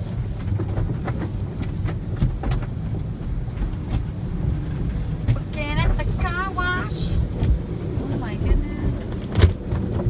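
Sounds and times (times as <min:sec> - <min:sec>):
car wash rumble: 0:00.0 - 0:10.0
knocks and splashes on car body: 0:00.2 - 0:06.2, 0:07.2 - 0:07.8, 0:09.1 - 0:10.0.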